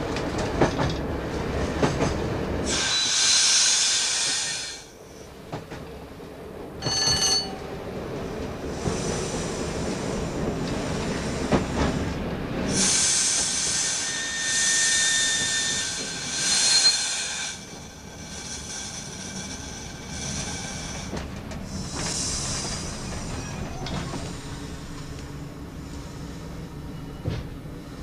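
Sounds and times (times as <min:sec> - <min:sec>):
diesel train rumble: 0:00.0 - 0:28.0
high metallic squeal and hiss: 0:02.7 - 0:04.8, 0:12.8 - 0:17.6.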